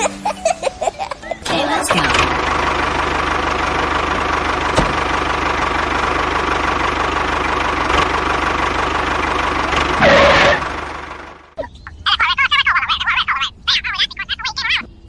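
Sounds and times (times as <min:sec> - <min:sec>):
small engine running: 0:01.4 - 0:11.5.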